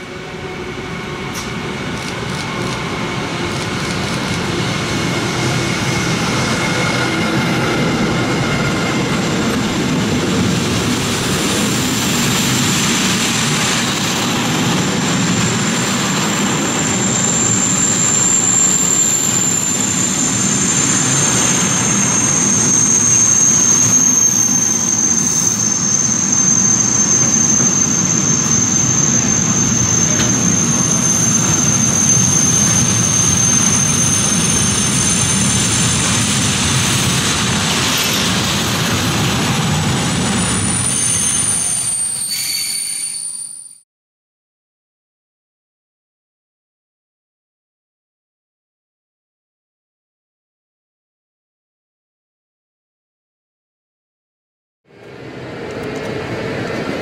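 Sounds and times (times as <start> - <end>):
train wheels running on rail: 0.0 - 43.3, 54.9 - 57.0
high-pitched squeal: 11.3 - 43.8.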